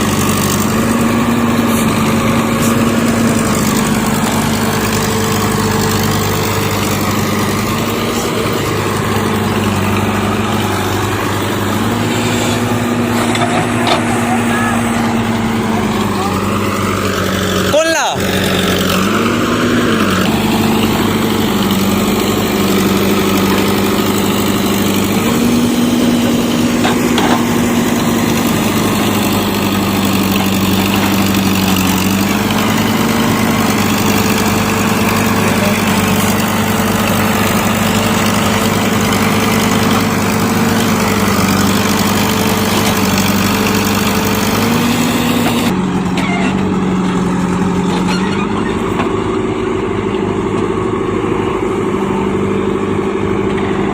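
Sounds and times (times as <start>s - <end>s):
heavy diesel engine running: 0.0s - 53.9s.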